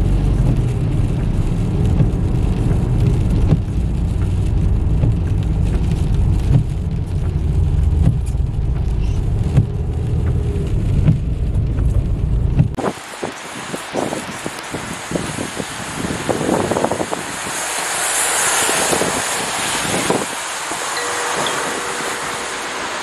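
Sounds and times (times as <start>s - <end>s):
car driving rumble: 0.0s - 12.8s.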